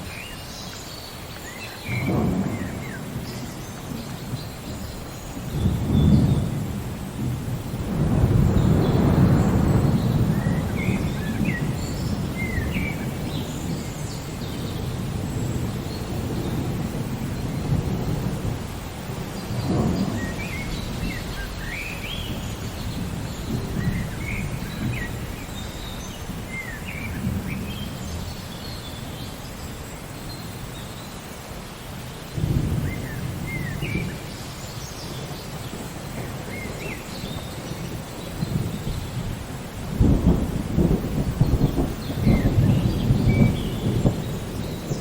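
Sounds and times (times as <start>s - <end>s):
steady rain: 0.0s - 45.0s
rolling thunder: 1.8s - 29.3s, 32.4s - 45.0s
birds chirping: 40.1s - 45.0s.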